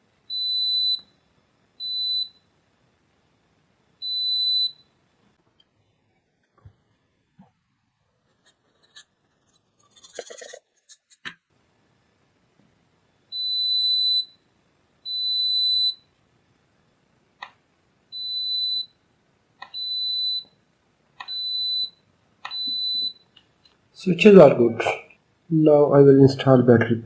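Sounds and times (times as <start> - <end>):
continuity tester beeping: 21.2 - 23.3.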